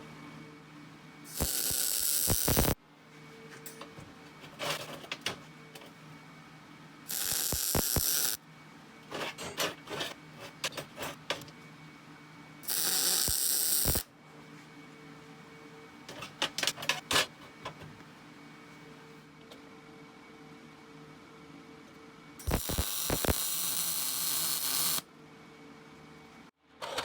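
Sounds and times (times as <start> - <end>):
welding arc crackling: 1.3 - 2.8, 7.1 - 8.4, 12.7 - 14.1, 22.4 - 25.0.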